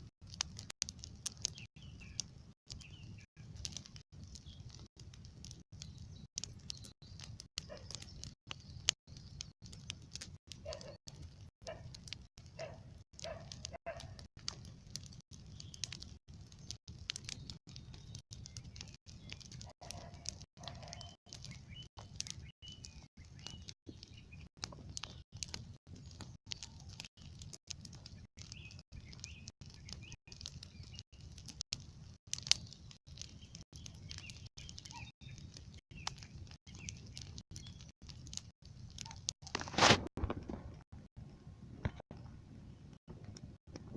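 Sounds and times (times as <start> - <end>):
campfire crackling: 0.0 - 43.9
faint bird chirps: 32.6 - 37.9.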